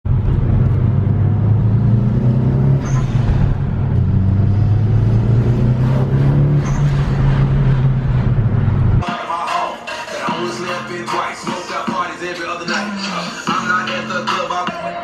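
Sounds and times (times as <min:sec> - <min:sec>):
car engine droning: 0:00.1 - 0:09.0.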